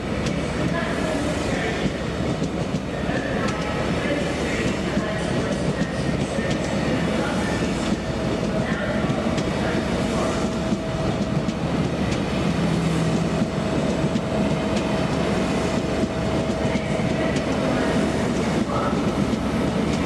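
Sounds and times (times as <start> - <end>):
train hum: 0.0 - 20.0
train rumbling on rails: 0.0 - 20.0.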